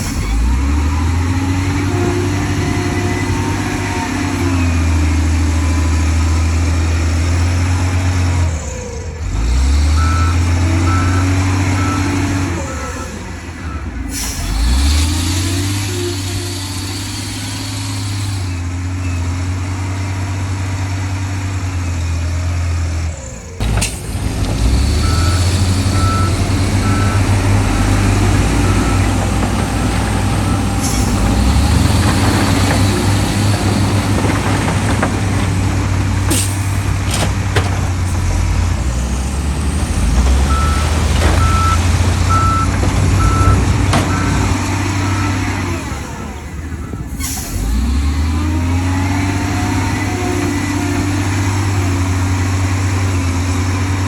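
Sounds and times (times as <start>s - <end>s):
heavy diesel engines under load: 0.0s - 54.0s
reversing alarm beeping: 10.0s - 13.9s, 25.0s - 31.8s, 40.4s - 47.2s.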